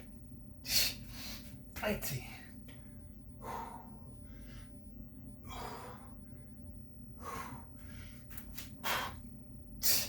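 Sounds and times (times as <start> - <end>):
person breathing hard: 2.9 - 4.8, 5.4 - 10.0.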